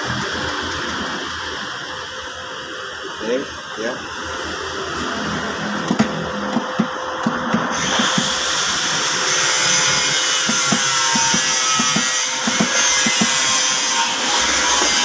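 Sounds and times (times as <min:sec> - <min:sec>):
power tool running: 0:04.1 - 0:15.0.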